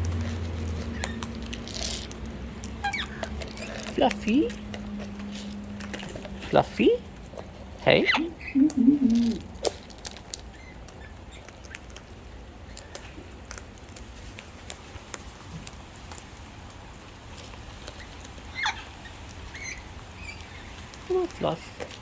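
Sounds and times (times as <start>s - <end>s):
rain pattering and dripping: 0.0s - 22.0s.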